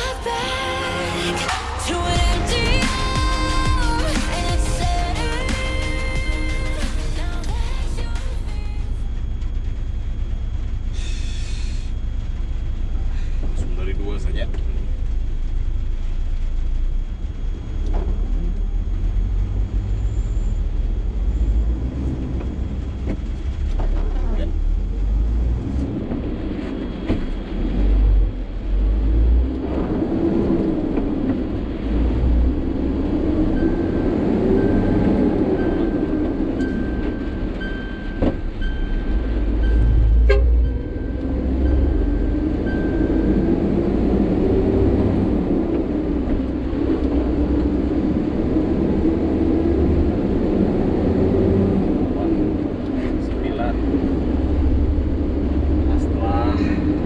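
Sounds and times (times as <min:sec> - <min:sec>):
truck diesel engine running: 0:00.0 - 0:29.6.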